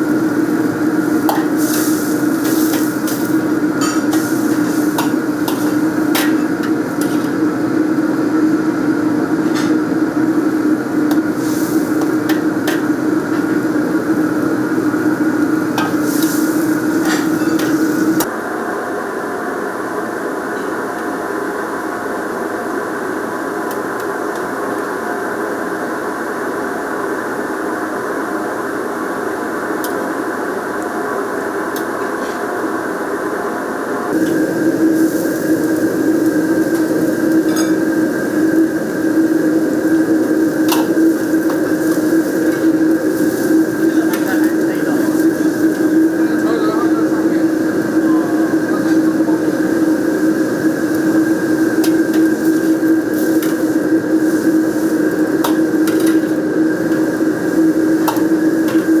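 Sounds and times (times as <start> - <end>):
low kitchen drone: 0.0 - 59.0.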